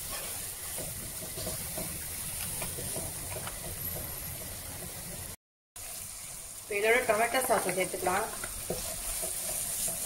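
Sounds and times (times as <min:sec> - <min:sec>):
wooden spatula scraping a pan: 0:00.0 - 0:04.2, 0:07.4 - 0:10.0
vegetables sizzling in oil: 0:00.0 - 0:10.0.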